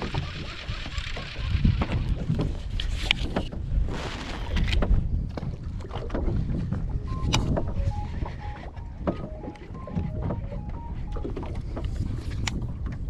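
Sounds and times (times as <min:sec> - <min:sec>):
wind buffeting microphone: 0:00.0 - 0:13.0
low boat rumble: 0:04.9 - 0:13.0
knocks and clicks: 0:07.1 - 0:13.0.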